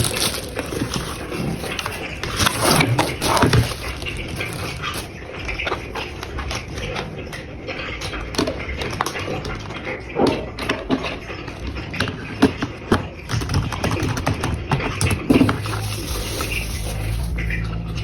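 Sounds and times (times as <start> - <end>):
knocks and clicks: 0.0 - 15.6
cardboard and plastic rustling: 0.0 - 17.8
low hum: 15.4 - 18.0.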